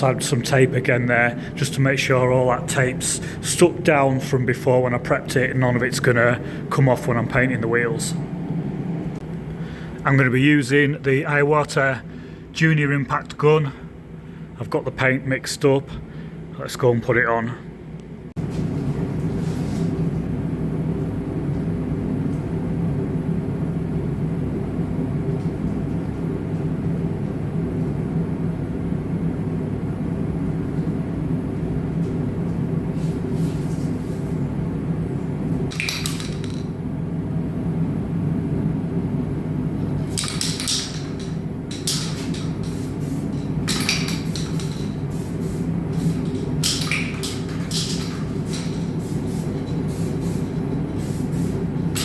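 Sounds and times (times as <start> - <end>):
low machine hum: 0.0 - 52.0
spray gun hissing: 41.8 - 52.0.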